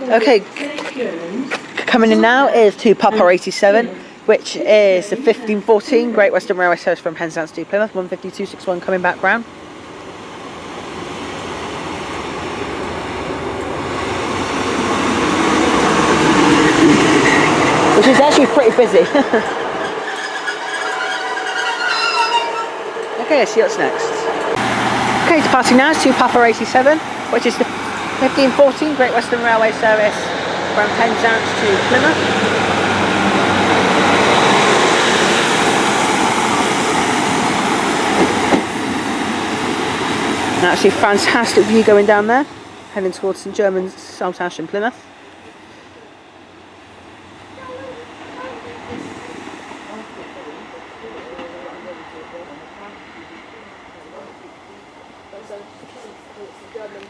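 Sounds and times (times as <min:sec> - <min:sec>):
train engine: 0:00.0 - 0:57.0
train wheel noise: 0:00.0 - 0:57.0
train wheels knocking: 0:33.1 - 0:42.4.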